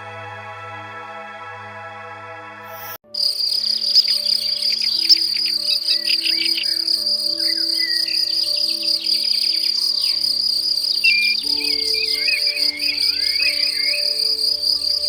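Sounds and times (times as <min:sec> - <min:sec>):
soft synthesizer music: 0:02.7 - 0:15.0
cricket-like insect trill: 0:03.1 - 0:15.0
bird chirps: 0:03.2 - 0:15.0
warbling bird call: 0:03.2 - 0:15.0.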